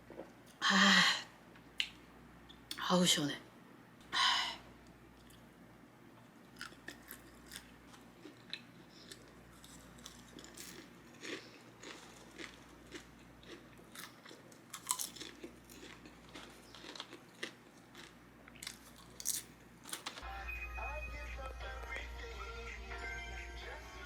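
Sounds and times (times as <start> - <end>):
person chewing and crunching food: 6.5 - 20.2.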